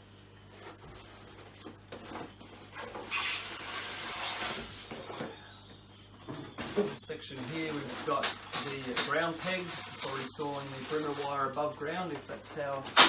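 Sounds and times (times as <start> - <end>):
packaging scraping rustle: 6.6 - 12.8.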